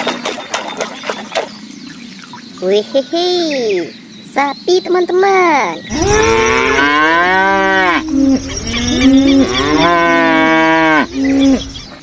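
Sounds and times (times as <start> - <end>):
cow mooing: 5.9 - 11.8.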